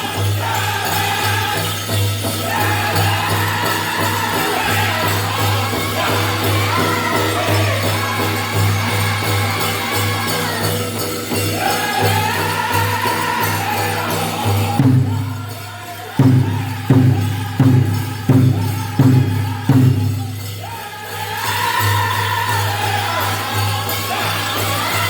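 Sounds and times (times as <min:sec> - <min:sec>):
group singing: 0:00.0 - 0:25.0
jingling bells: 0:00.0 - 0:25.0
big drum strikes: 0:16.2 - 0:20.4.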